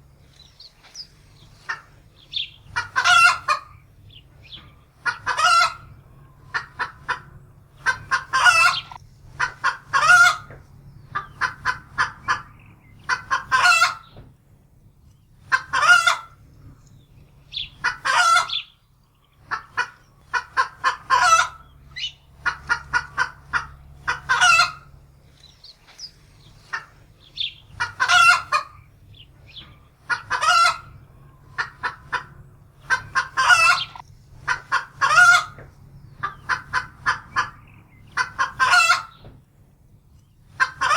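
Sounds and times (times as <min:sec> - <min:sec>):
hen cackling in alarm: 0:01.6 - 0:14.2, 0:15.4 - 0:16.4, 0:17.5 - 0:18.8, 0:19.4 - 0:25.0, 0:26.0 - 0:39.2, 0:40.5 - 0:40.9.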